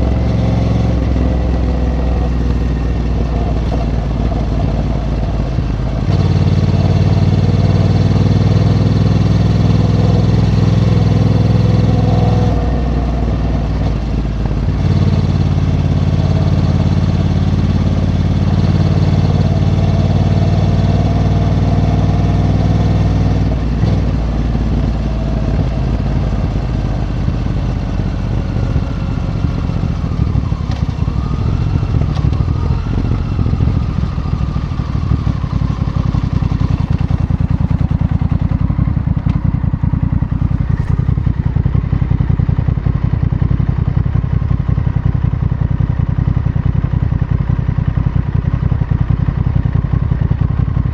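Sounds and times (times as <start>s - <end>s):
motorcycle engine pulling: 40.4s - 41.3s.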